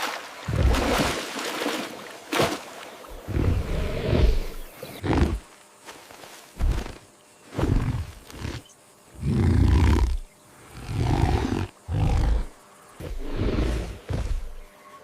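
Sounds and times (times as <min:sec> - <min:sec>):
deep animal roars: 0:09.2 - 0:14.6.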